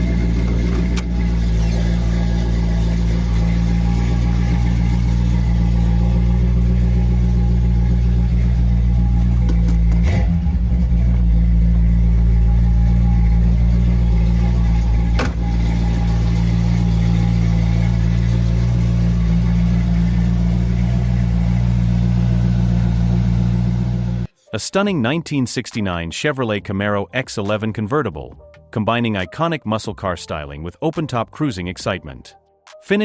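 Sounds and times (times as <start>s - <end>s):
car engine idling: 0.0s - 24.3s.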